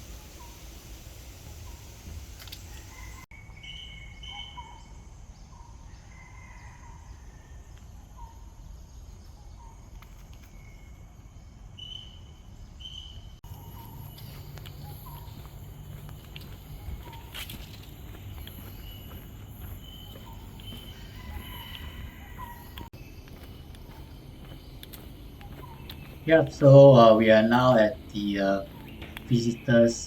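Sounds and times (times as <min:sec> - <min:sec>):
birds whistling: 0:02.6 - 0:06.6, 0:11.8 - 0:30.0
high paired bird chirps: 0:02.6 - 0:07.1, 0:07.8 - 0:30.0.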